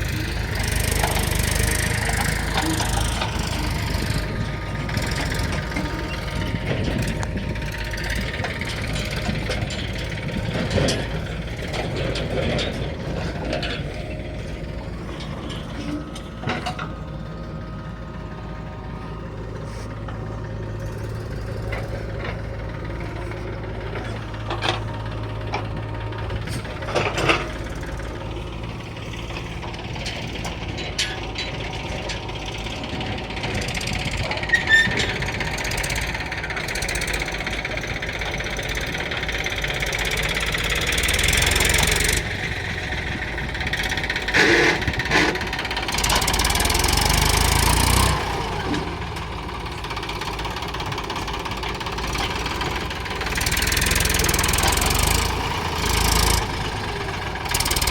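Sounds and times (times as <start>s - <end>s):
diesel engine running: 0.0s - 57.9s
metal knocks and clanks: 0.2s - 17.0s.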